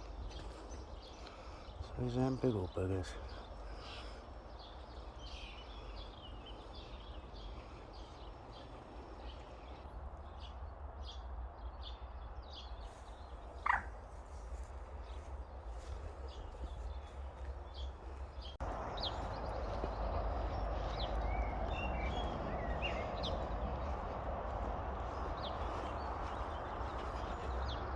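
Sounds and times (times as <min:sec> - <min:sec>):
small birds chirping: 0:00.0 - 0:27.9
steady low rumble: 0:14.6 - 0:27.9.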